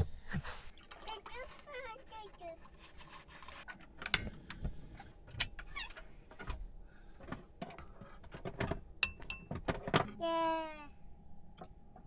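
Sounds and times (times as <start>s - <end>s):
dishes and utensils clicking: 4.0s - 4.4s, 8.6s - 10.0s.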